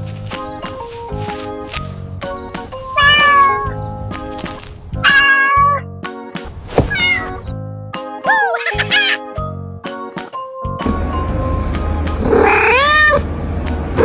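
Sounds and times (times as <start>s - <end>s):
cartoon background music: 0.3s - 14.0s
cartoon animal calls bending in pitch: 8.3s - 9.2s.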